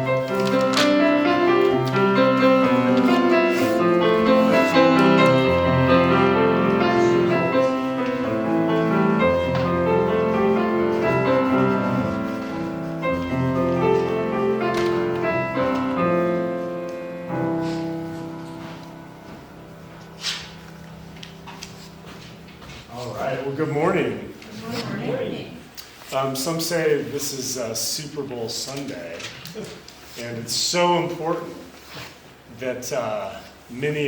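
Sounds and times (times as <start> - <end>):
slow chordal piano prelude: 0.0 - 24.3.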